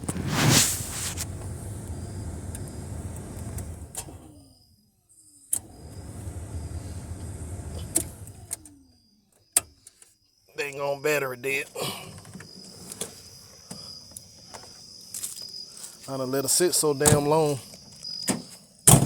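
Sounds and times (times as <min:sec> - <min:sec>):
car starter motor cranking: 0:00.0 - 0:04.6, 0:05.5 - 0:09.0.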